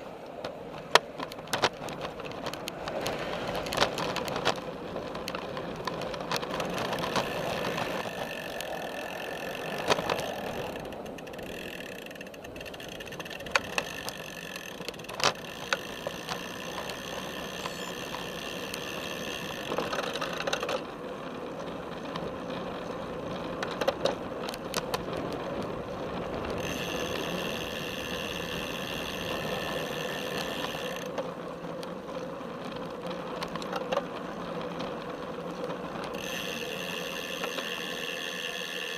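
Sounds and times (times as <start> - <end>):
tyre and frame noise: 0.3 - 38.9
sharp clicks and knocks: 0.4 - 4.6, 10.9 - 18.8
bicycle freehub ratchet buzzing: 5.2 - 20.8, 26.0 - 31.9, 33.6 - 38.9.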